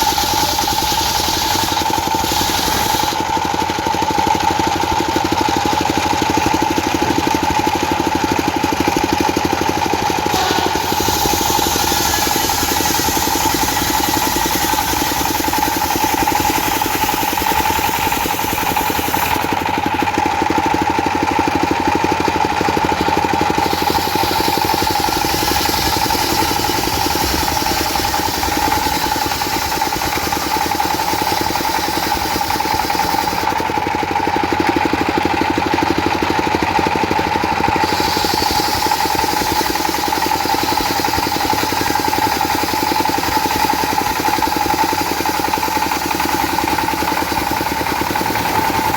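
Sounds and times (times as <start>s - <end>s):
diesel engine clatter: 0.0s - 48.9s
circular saw whine: 8.9s - 19.8s, 22.9s - 33.6s, 37.8s - 48.9s.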